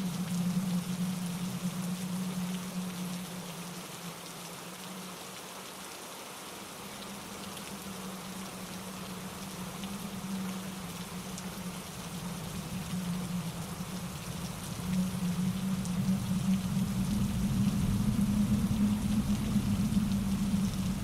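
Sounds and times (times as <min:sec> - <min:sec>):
steady rain: 0:00.0 - 0:21.0
stream cascading over rocks: 0:00.0 - 0:21.0
low rumble: 0:08.5 - 0:21.0.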